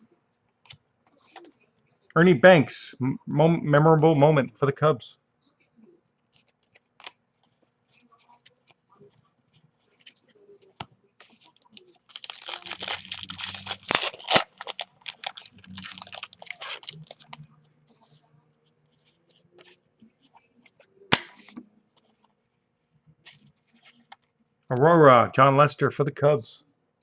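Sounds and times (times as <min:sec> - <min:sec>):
card pack wrapper tearing and crinkling: 0:11.4 - 0:17.4.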